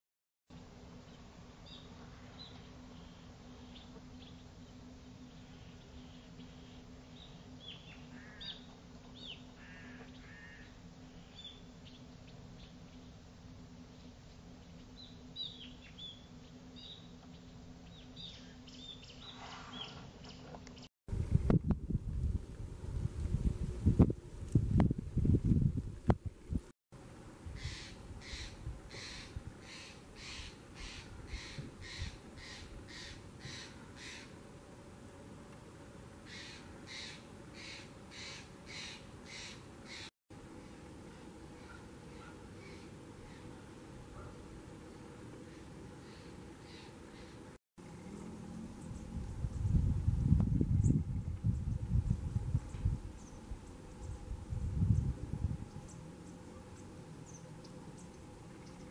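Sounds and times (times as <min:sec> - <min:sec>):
faint steady hum: 0:00.5 - 0:58.9
birds calling: 0:01.1 - 0:13.2, 0:14.6 - 0:20.9, 0:27.6 - 0:34.4, 0:36.2 - 0:49.8
bird giving harsh calls: 0:09.6 - 0:10.7, 0:27.6 - 0:34.4, 0:36.3 - 0:40.1.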